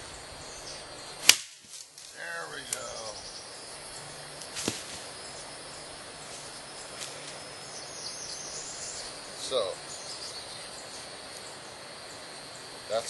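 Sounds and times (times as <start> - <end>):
insects: 0.0 - 13.0
bird chirps: 2.2 - 4.4, 5.1 - 13.0.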